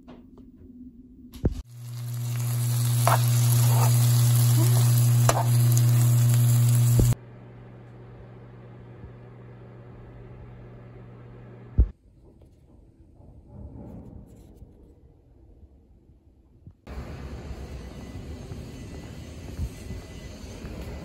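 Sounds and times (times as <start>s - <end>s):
low hum: 0.0s - 21.0s
rice sizzling in a frying pan: 1.6s - 7.2s.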